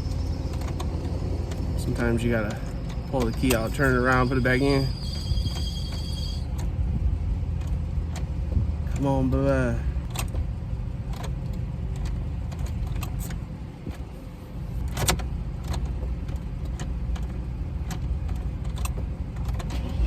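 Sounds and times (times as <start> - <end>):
low rumble: 0.0 - 18.3
key clicking in ignition: 0.1 - 6.8, 10.0 - 10.4, 11.1 - 14.1, 14.8 - 20.0.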